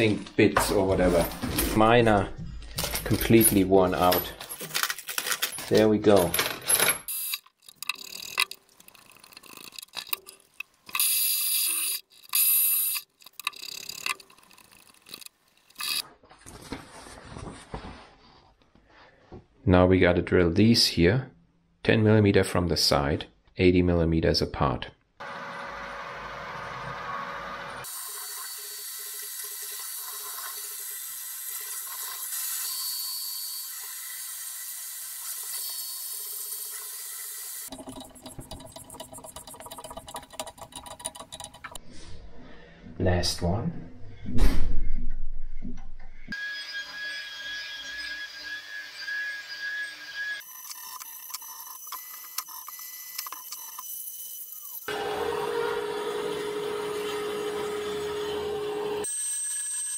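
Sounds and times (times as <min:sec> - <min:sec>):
metallic clicks and scrapes: 0:04.1 - 0:16.0.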